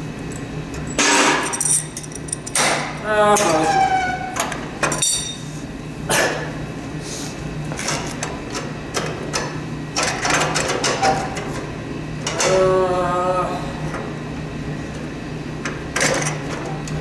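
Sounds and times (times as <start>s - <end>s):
metal parts clinking and rattling: 0.3s - 2.8s, 4.9s - 5.4s.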